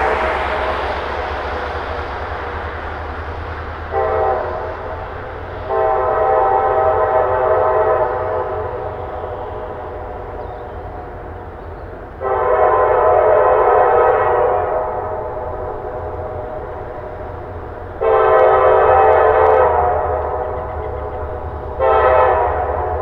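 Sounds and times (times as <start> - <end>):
low rumble of train: 0.0 - 23.0
locomotive air horn blasts: 3.8 - 10.4, 12.2 - 23.0.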